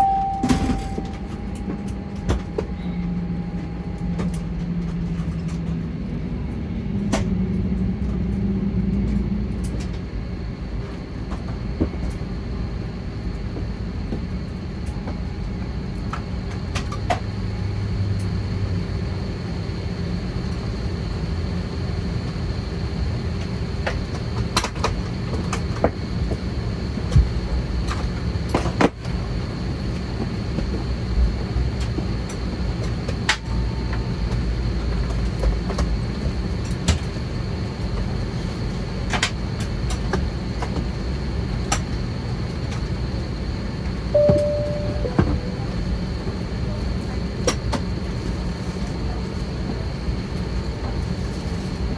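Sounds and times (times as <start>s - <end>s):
faint steady whine: 0.0s - 1.8s, 44.2s - 46.3s
airplane cabin rumble: 0.0s - 18.0s, 42.8s - 51.9s.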